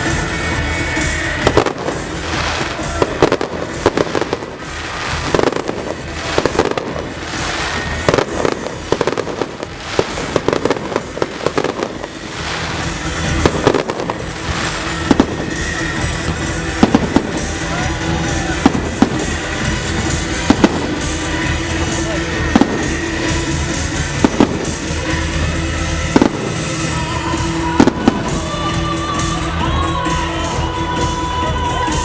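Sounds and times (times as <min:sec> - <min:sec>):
fireworks bangs and crackles: 0:00.0 - 0:32.0
music playing: 0:00.0 - 0:32.0.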